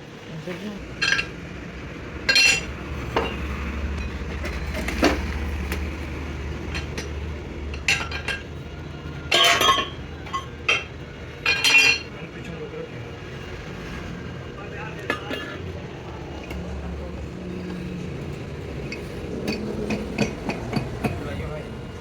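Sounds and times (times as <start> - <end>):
steel tools clinking on metal: 1.0 - 1.4, 2.3 - 5.2, 6.7 - 8.6, 9.3 - 12.3.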